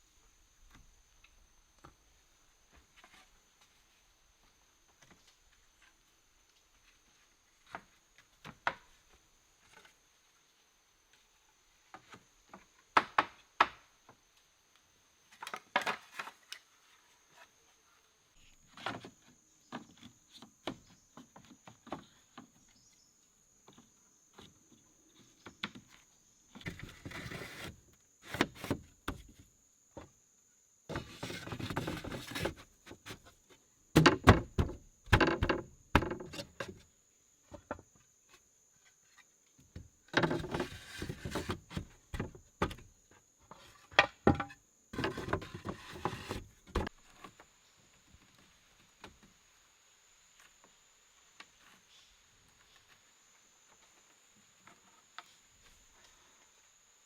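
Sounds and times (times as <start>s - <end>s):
rustling and scraping of brush: 26.6s - 29.3s, 30.9s - 33.6s, 40.2s - 42.4s
wood knocks and snaps: 33.9s - 36.8s.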